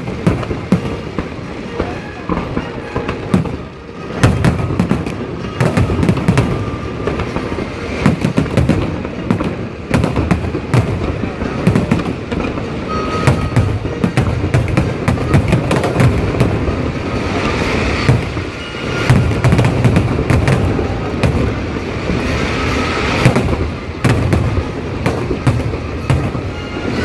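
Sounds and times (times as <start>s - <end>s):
firework booms and crackling: 0.0s - 27.0s
steady low rumble: 13.4s - 22.4s.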